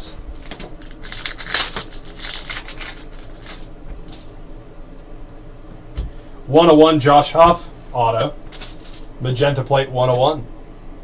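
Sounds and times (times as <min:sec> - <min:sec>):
trading cards rustling and flicking: 0:00.3 - 0:04.3, 0:08.5 - 0:09.1.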